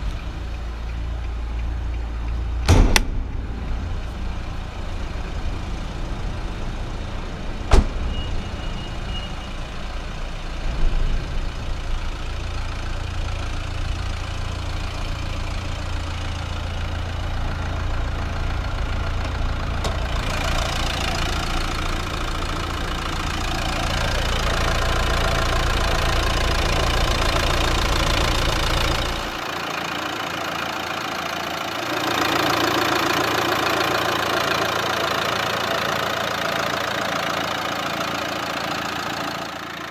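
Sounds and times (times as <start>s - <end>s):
diesel engine idling: 0.0s - 39.9s
sharp click: 2.3s - 3.5s.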